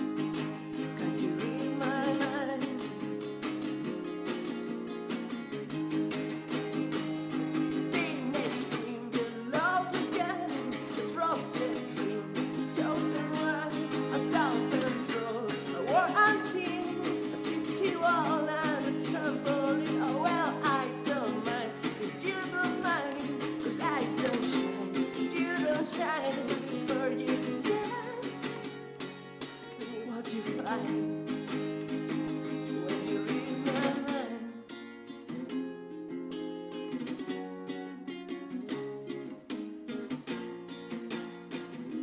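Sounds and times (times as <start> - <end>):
person singing: 0.0 - 3.4, 7.5 - 28.7, 29.6 - 34.8
strummed acoustic guitar: 0.0 - 42.0.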